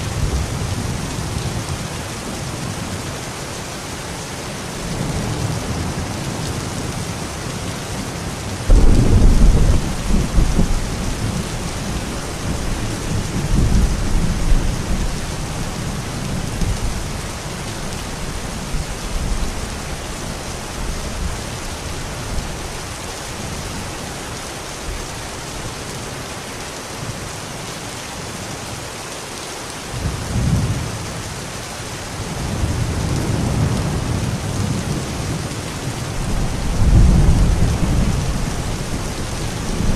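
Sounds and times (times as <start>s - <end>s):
steady rain: 0.0s - 39.9s
loud thunder clap: 8.7s - 11.5s
rolling thunder: 8.7s - 17.2s, 36.2s - 39.9s.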